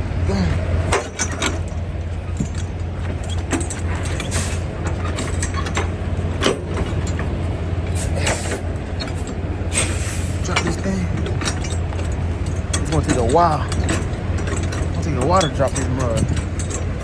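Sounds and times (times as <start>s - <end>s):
diesel truck engine idling: 0.0s - 17.0s
metallic clinks and clanks: 0.9s - 7.4s, 10.4s - 17.0s.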